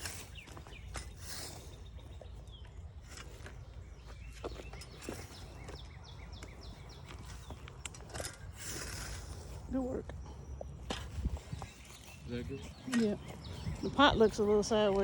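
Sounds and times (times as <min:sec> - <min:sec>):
small bird chirping: 0:00.0 - 0:15.0.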